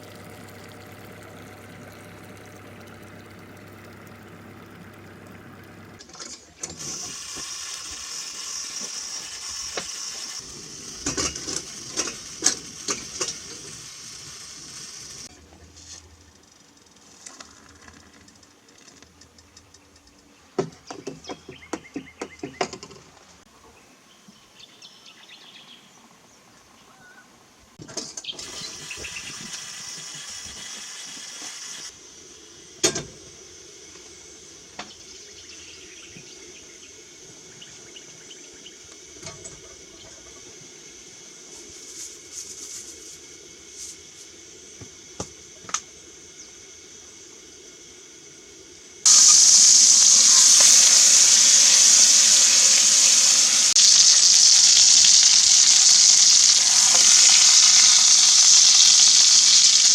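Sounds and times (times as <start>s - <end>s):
food sizzling in a frying pan: 6.8s - 15.3s, 49.0s - 59.9s.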